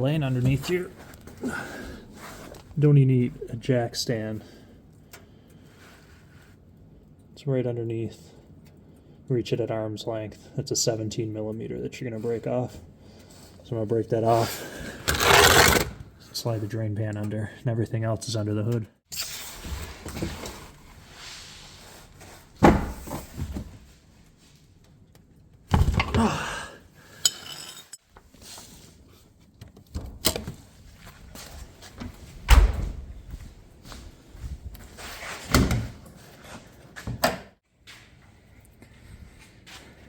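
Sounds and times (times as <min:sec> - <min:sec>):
thuds and clunks of tools: 0:25.7 - 0:26.4.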